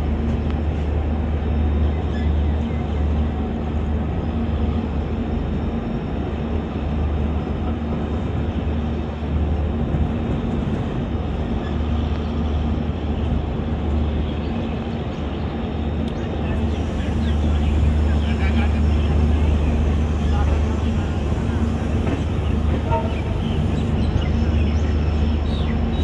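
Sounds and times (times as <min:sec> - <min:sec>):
train wheels rumbling: 0:00.0 - 0:26.0.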